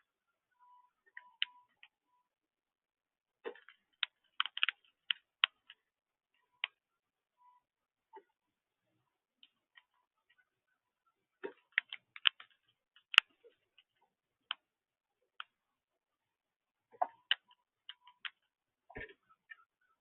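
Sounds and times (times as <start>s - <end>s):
birds pecking seed clicks: 3.4s - 5.8s, 11.4s - 14.6s, 17.0s - 18.4s.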